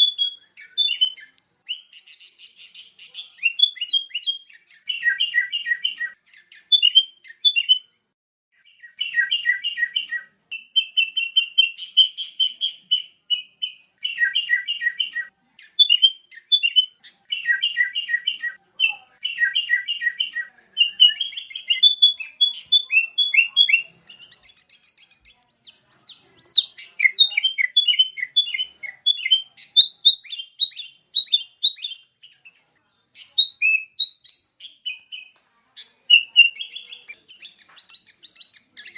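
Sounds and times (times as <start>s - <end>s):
bird singing bubbly chirps: 36.2s - 38.9s.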